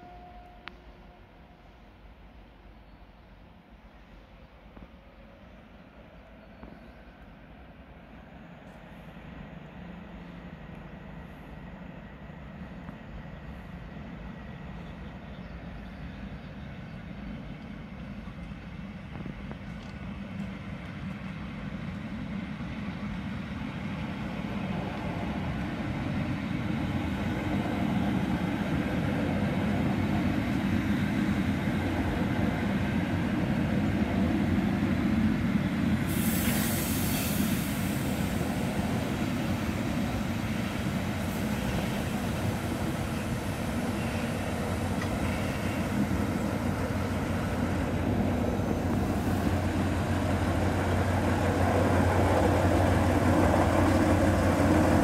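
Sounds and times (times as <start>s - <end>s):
train wheels on rails: 6.3s - 55.0s
diesel locomotive engine running: 7.8s - 55.0s
hiss: 36.0s - 52.6s.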